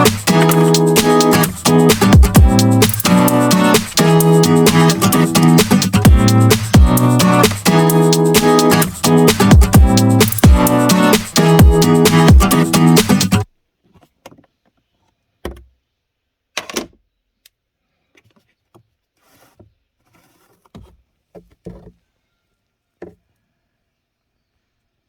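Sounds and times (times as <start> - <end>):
soft rustling: 18.2 - 21.1.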